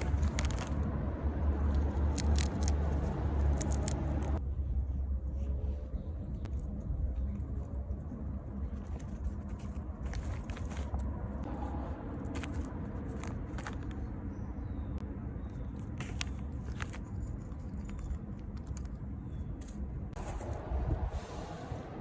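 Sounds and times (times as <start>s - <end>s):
peanut shells cracking: 0.0s - 4.4s
distant road traffic rumble: 0.0s - 22.0s.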